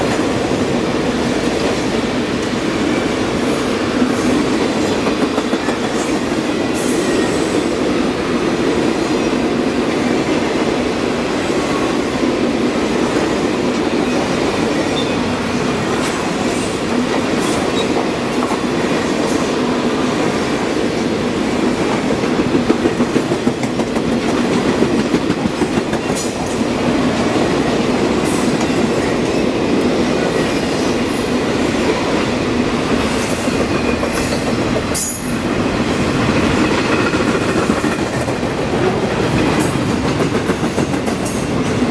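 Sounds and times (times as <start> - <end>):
train wheels rumbling on rails: 0.0 - 41.9.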